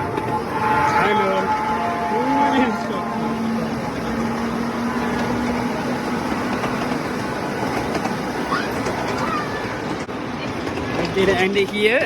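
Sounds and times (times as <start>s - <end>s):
miniature train rumbling on track: 0.0s - 12.0s.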